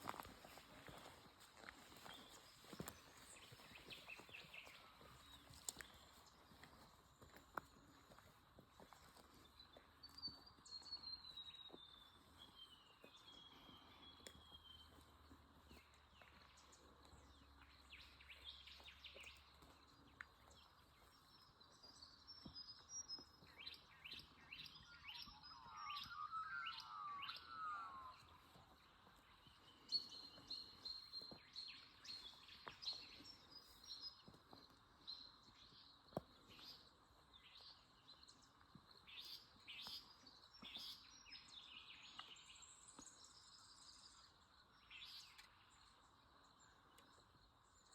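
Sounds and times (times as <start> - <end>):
birds chirping and whistling: 22.4 - 28.7
warbling bird call: 25.4 - 28.4.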